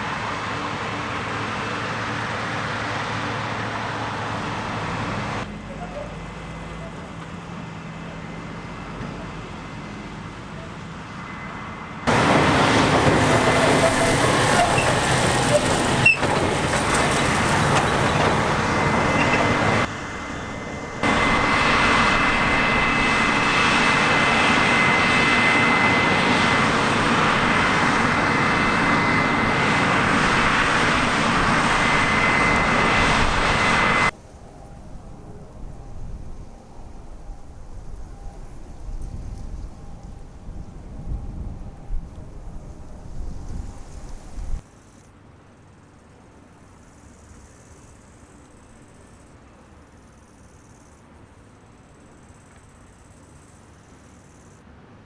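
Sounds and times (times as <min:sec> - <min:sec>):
harvest machinery running: 0:00.0 - 0:34.1
high mechanical whine: 0:04.3 - 0:44.6.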